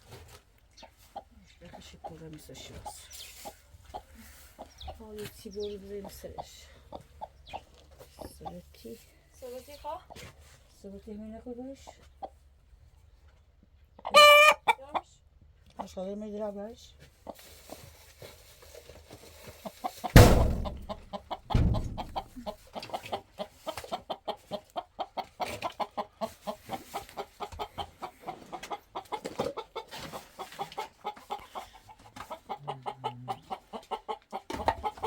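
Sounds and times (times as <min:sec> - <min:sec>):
chickens clucking: 0:00.1 - 0:09.0, 0:11.8 - 0:15.0, 0:19.2 - 0:35.0
loud thump: 0:20.2 - 0:22.5.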